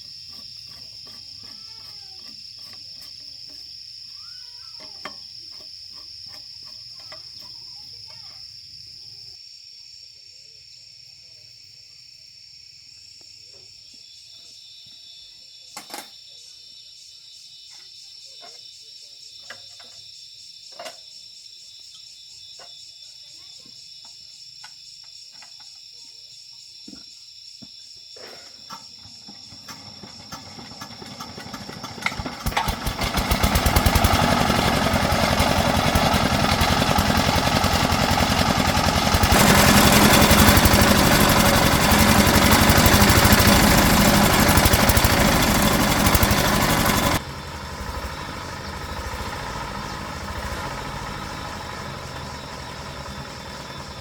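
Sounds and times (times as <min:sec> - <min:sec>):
tractor engine running: 0:29.4 - 0:54.0.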